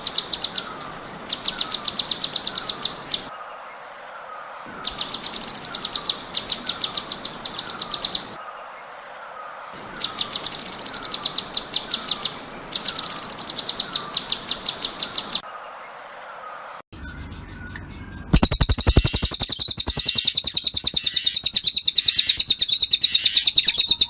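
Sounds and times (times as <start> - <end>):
songbird rapid high chirps: 0.0 - 3.3, 4.7 - 8.4, 9.8 - 15.4, 17.0 - 24.0
faint descending bird chirp: 16.4 - 24.0.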